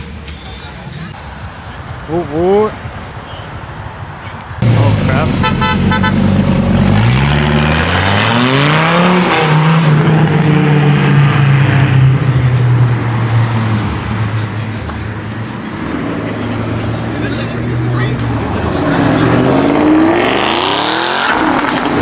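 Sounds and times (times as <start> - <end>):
car engine accelerating hard: 4.6 - 22.0.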